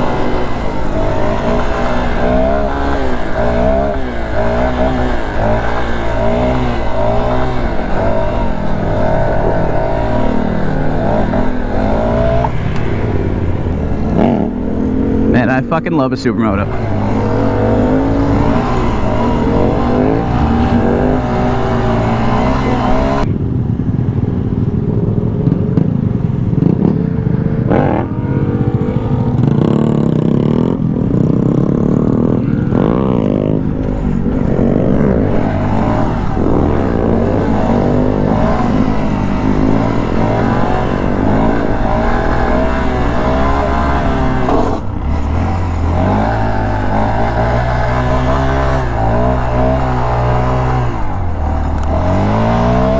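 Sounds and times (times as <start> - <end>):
engines revving: 0.0 - 52.9
steady engine drone: 0.0 - 52.9.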